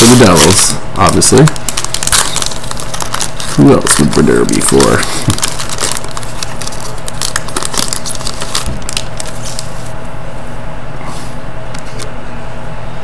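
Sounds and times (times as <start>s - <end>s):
card wrapper crinkling: 0.0s - 9.9s.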